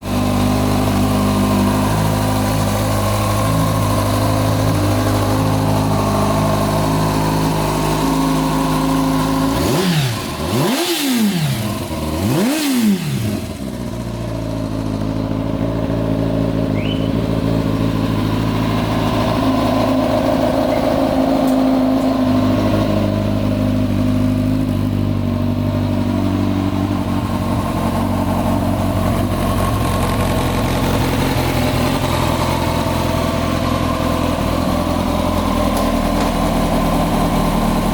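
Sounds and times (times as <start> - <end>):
motorcycle engine idling: 0.0 - 37.9
motorcycle engine revving: 0.0 - 37.9.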